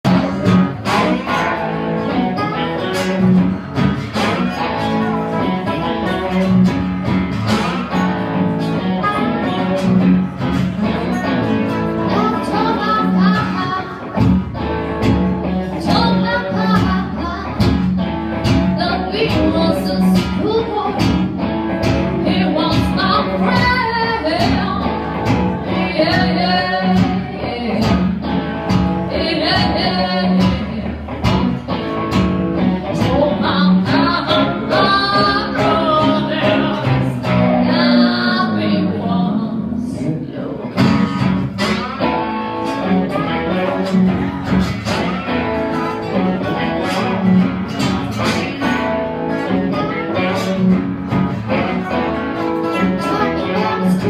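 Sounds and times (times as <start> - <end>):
blues band playing live: 0.0 - 54.0
guitar chords plucked and strummed: 0.0 - 54.0
person singing: 10.8 - 14.2, 15.5 - 17.7, 21.8 - 28.0, 29.1 - 31.2, 32.7 - 40.9, 48.1 - 50.8, 51.4 - 54.0.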